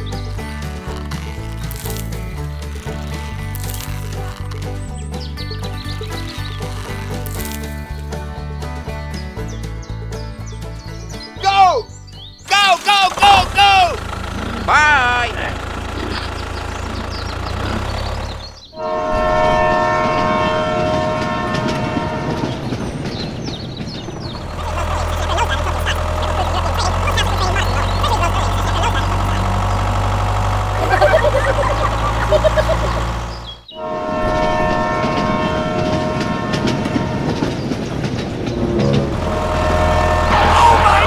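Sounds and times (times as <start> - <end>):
rattling clatter: 12.5 - 18.7, 21.3 - 33.7, 35.0 - 41.0
multi-tone horn chord: 18.8 - 22.8, 33.8 - 37.5, 39.1 - 41.0.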